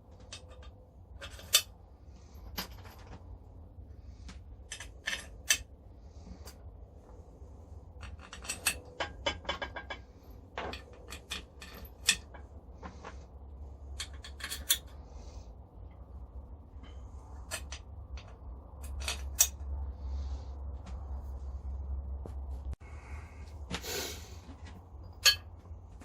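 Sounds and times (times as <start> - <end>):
low steady hum: 0.0 - 26.0
metal tools clinking and clattering: 2.4 - 3.2, 8.0 - 13.2, 14.0 - 15.0, 24.6 - 25.6.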